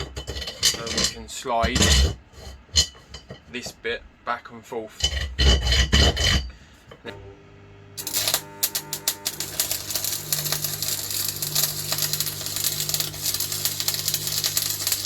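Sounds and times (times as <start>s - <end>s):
arc welder crackling: 7.9s - 15.0s.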